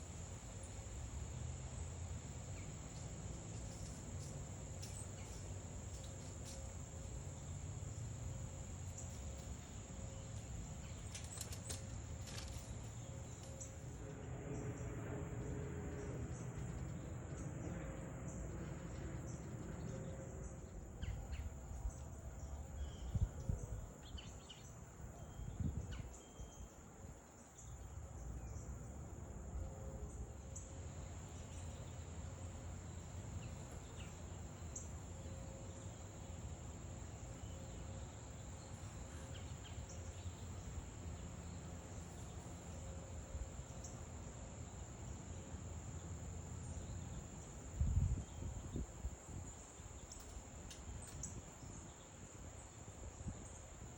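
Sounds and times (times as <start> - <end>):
low outdoor rumble: 0.0 - 24.0
crickets chirping: 0.0 - 53.9.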